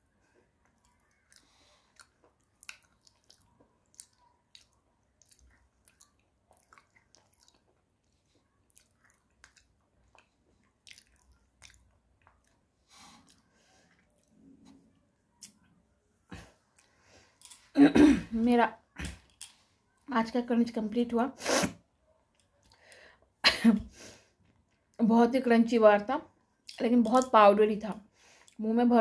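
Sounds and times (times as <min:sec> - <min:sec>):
small crunches of chewing: 0:00.6 - 0:14.4.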